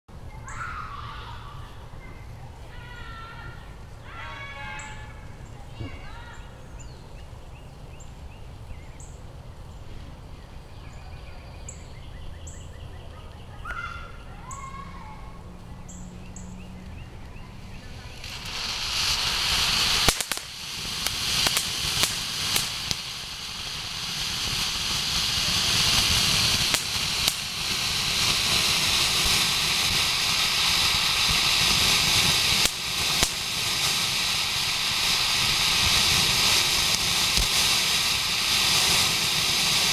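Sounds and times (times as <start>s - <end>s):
firework fountain hissing: 0.1s - 11.9s, 14.1s - 39.9s
crackling pops: 16.8s - 39.9s.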